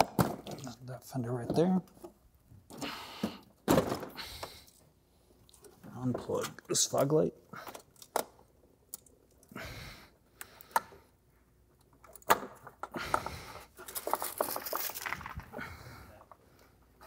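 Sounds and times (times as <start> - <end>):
plastic rattling and scraping: 12.1 - 15.6.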